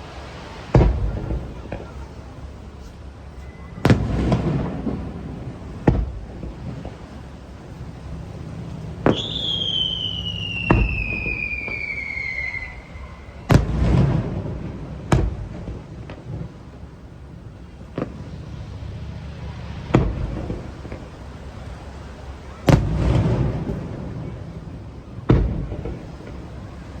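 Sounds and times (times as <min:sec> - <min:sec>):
whistling firework: 0:00.0 - 0:27.0
firework shells bursting: 0:03.9 - 0:24.4.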